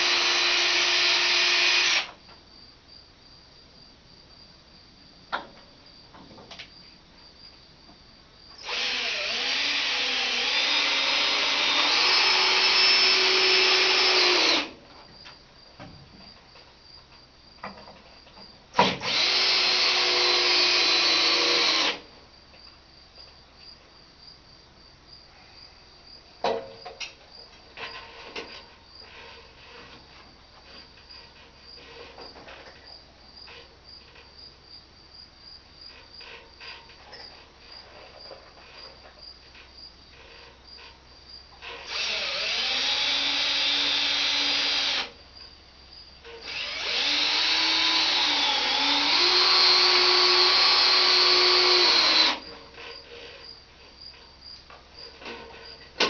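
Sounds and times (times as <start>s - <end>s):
power drill running: 0.0s - 2.1s, 8.6s - 14.8s, 19.0s - 22.0s, 41.6s - 45.1s, 46.4s - 52.4s
crickets chirping: 0.0s - 56.0s.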